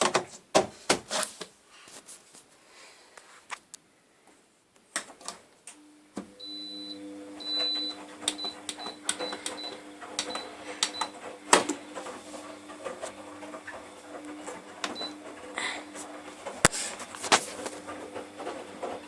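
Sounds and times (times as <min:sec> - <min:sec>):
laundry machine motor hum: 0:05.8 - 0:19.0.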